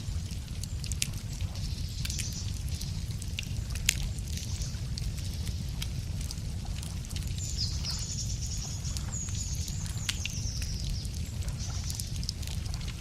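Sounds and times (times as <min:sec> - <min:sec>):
steady low rumble: 0:00.0 - 0:13.0
wood fire crackling: 0:00.0 - 0:13.0
songbird trilling: 0:07.4 - 0:12.0.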